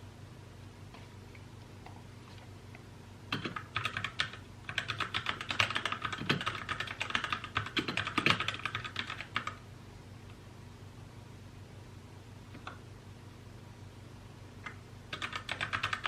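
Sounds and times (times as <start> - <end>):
mechanical keyboard typing: 3.3 - 9.6, 15.1 - 16.0.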